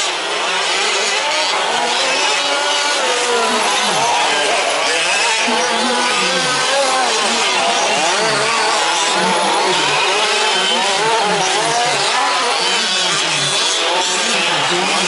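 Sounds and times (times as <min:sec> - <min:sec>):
small two-stroke engines buzzing: 0:00.0 - 0:15.0.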